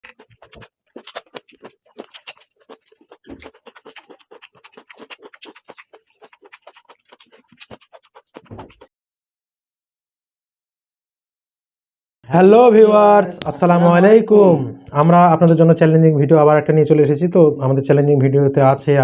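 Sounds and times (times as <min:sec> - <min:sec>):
scratching and crackling clicks: 0:00.0 - 0:08.9.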